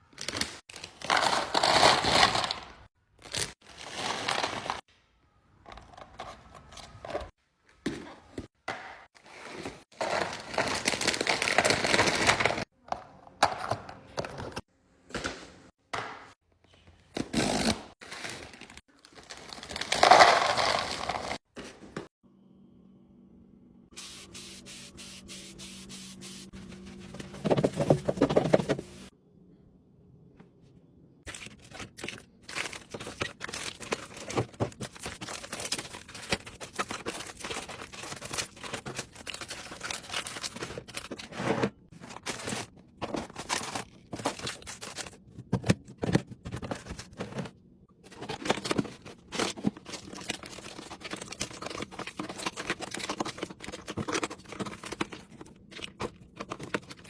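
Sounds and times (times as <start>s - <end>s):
packaging crinkling and tearing: 10.0s - 12.7s, 17.3s - 21.4s, 31.3s - 41.3s, 48.1s - 57.0s.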